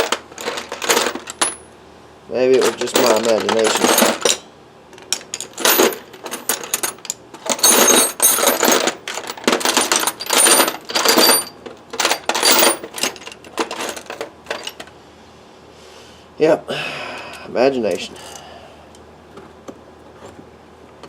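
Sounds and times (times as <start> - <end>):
metal tools clinking in a bag: 0.0 - 1.7, 2.5 - 4.4, 5.0 - 14.9.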